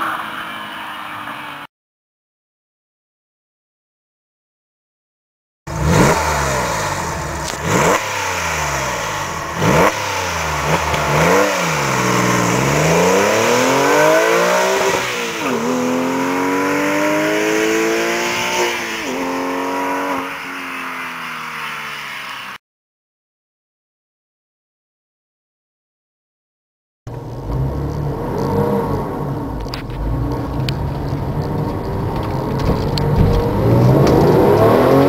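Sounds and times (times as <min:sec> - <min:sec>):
car engine revving and accelerating: 0:05.7 - 0:22.5, 0:27.1 - 0:35.0.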